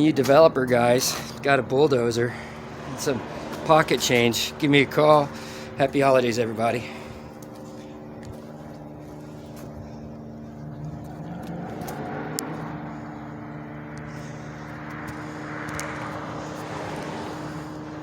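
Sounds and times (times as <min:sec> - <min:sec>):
passing engine noise: 0:00.0 - 0:18.0
vehicle engine humming: 0:00.0 - 0:18.0.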